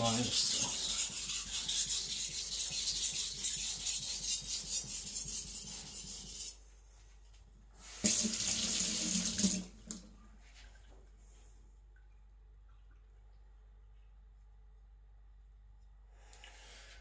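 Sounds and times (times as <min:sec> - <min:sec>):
knife grinding on water stone: 0:00.0 - 0:06.6
water rushing from tap: 0:08.0 - 0:10.1.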